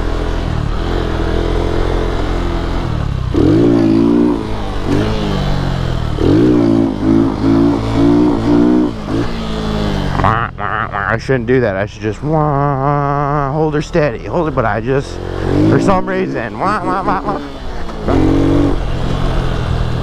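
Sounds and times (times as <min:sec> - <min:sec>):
motorcycle engine revving: 0:00.0 - 0:11.5, 0:12.4 - 0:20.0.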